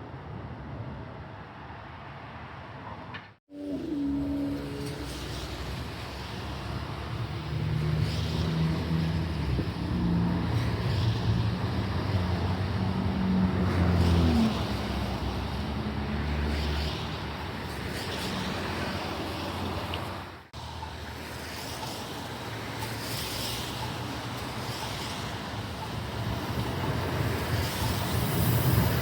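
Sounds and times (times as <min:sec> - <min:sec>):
electric train motors humming: 0:03.5 - 0:07.8
train running rumble: 0:03.5 - 0:29.0.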